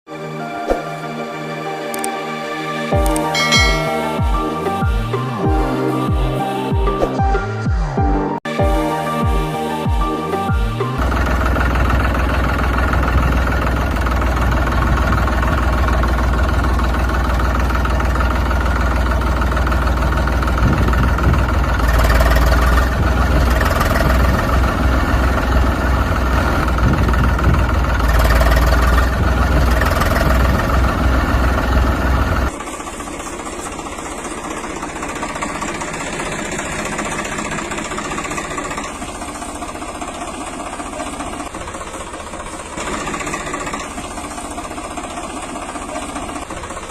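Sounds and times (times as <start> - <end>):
quieter steady engine: 9.8 - 46.9
vehicle engine idling: 10.2 - 46.9.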